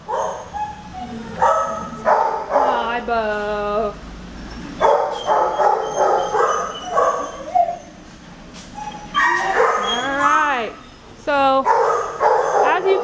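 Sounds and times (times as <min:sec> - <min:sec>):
dogs barking: 0:00.0 - 0:03.0, 0:04.7 - 0:08.0, 0:08.8 - 0:10.6, 0:11.6 - 0:13.0.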